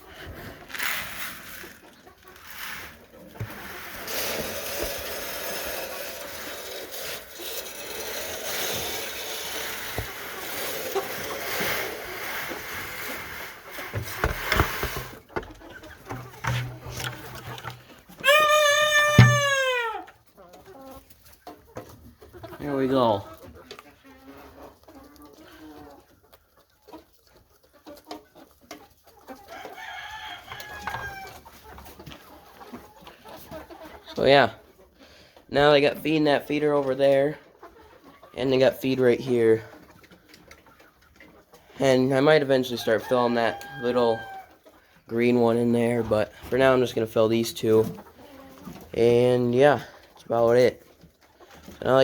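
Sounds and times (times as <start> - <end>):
chickens clucking: 0.0 - 52.0
poultry feed pouring into feeder: 0.1 - 21.2, 35.6 - 49.8
rooster crowing: 18.2 - 20.0
knocks: 19.2 - 19.6.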